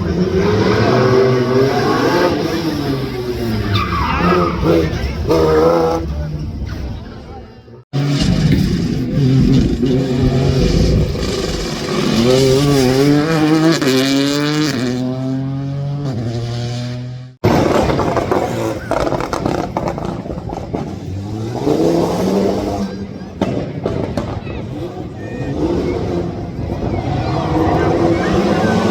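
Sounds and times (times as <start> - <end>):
rally car revving and shifting gears: 0.0 - 6.4, 8.0 - 28.9
second car accelerating hard: 8.0 - 23.1.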